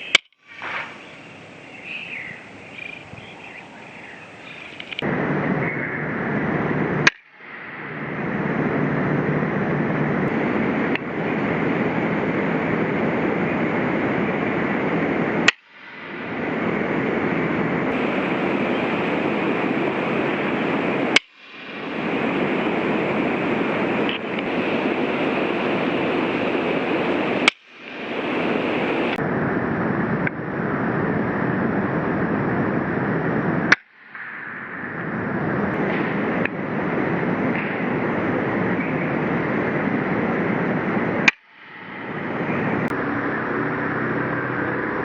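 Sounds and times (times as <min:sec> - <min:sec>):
steady rushing noise: 0:00.0 - 0:45.0
air rifle shots: 0:00.1 - 0:01.6.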